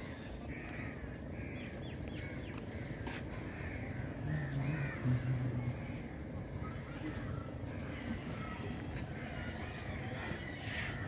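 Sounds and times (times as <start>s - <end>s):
low background rumble: 0.0s - 10.6s
crows cawing: 0.1s - 6.1s
low droning tone: 3.8s - 6.5s.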